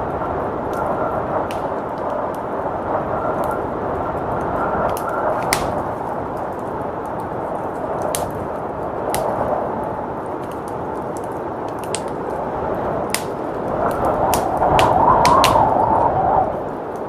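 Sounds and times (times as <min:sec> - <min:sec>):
blizzard wind rushing: 0:00.0 - 0:17.0
wood fire crackling: 0:00.0 - 0:17.0.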